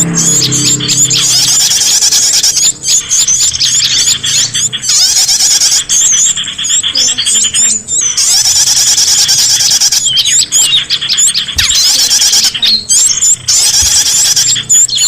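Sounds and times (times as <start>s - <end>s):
low hum: 0.0s - 8.1s
songbirds chirping and twittering: 0.0s - 15.0s.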